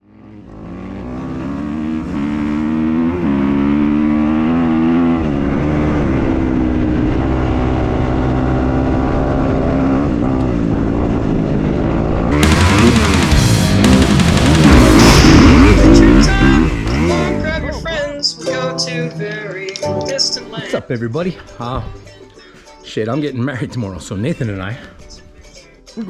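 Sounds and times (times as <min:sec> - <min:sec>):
dirt bike engine revving: 0:00.0 - 0:18.2
loud rock music with guitar: 0:12.4 - 0:18.2.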